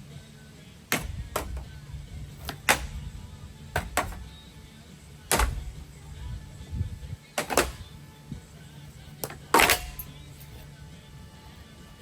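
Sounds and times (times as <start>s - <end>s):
low steady hum: 0.0s - 12.0s
sharp hard hits: 0.9s - 3.2s, 3.8s - 4.4s, 5.2s - 5.9s.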